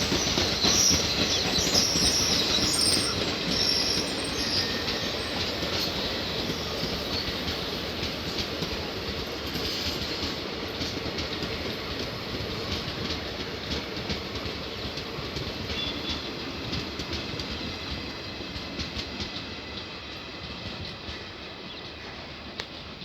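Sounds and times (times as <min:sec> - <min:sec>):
train rumble: 0:00.0 - 0:23.0
train wheels clicking over rail joints: 0:00.0 - 0:23.0.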